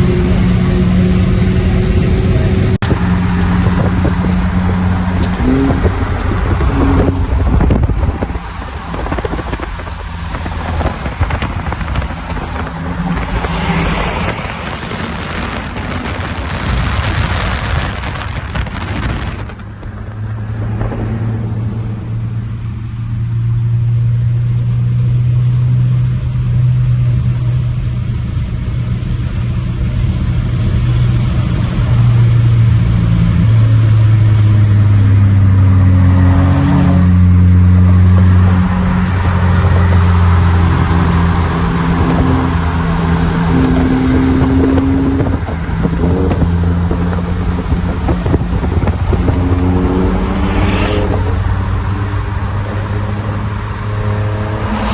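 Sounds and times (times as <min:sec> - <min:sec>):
rushing noise: 0:00.0 - 0:22.1, 0:45.7 - 0:54.9.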